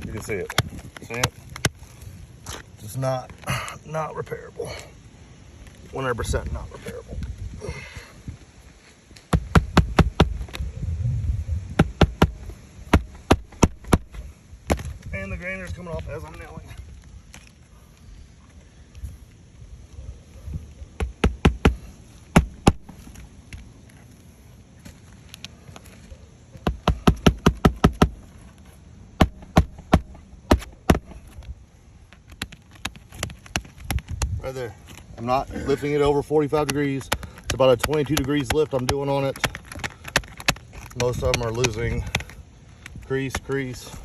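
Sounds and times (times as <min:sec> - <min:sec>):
hammer driving nails into shingles: 0:09.3 - 0:10.4, 0:11.8 - 0:14.8, 0:26.6 - 0:28.2, 0:29.2 - 0:31.2, 0:36.6 - 0:42.4
hammer striking nails: 0:09.3 - 0:10.4, 0:11.8 - 0:14.2, 0:21.0 - 0:22.9, 0:26.6 - 0:28.2, 0:29.2 - 0:31.2.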